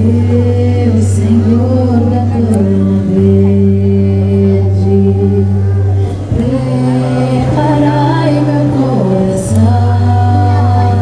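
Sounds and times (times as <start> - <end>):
group singing: 0.0 - 11.0.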